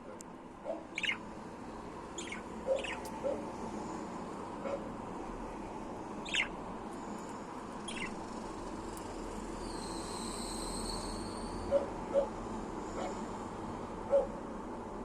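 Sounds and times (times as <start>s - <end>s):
budgerigar chirps: 0.9s - 1.2s, 2.2s - 3.4s, 6.2s - 6.6s, 7.9s - 8.2s.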